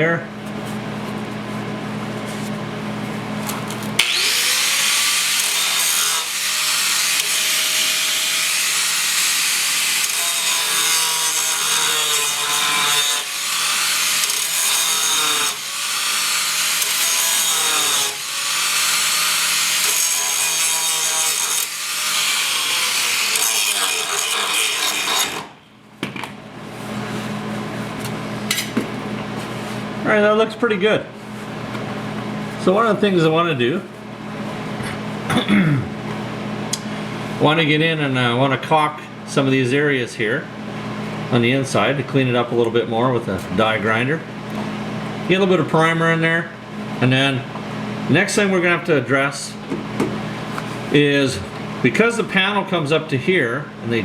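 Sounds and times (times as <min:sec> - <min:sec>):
power grinder on metal: 0:04.0 - 0:25.6.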